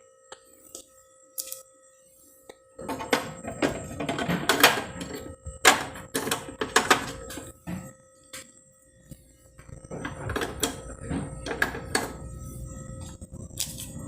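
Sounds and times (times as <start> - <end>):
containers clattering in refrigerator: 2.8 - 7.9, 9.8 - 12.3.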